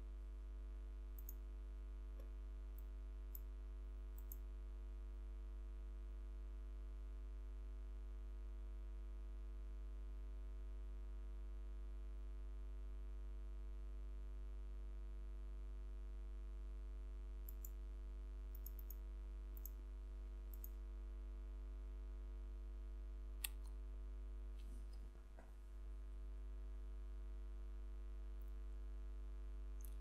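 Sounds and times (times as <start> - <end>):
faint clicks: 1.2 - 1.4, 4.2 - 4.4, 17.4 - 17.8, 18.5 - 19.0, 19.6 - 19.8, 20.5 - 20.8, 29.8 - 30.0.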